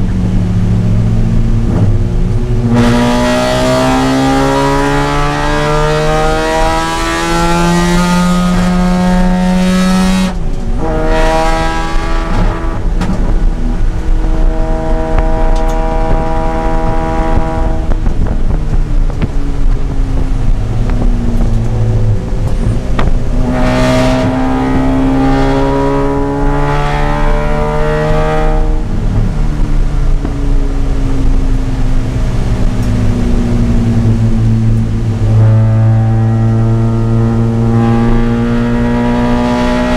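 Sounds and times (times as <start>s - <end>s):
rotary engine revving: 1.3s - 18.4s, 20.4s - 29.5s.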